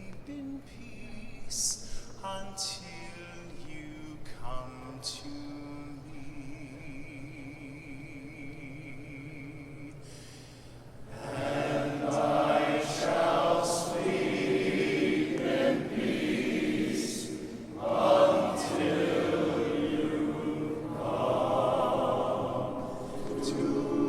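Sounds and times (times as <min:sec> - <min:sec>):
men's choir singing in parts: 0:11.1 - 0:24.0.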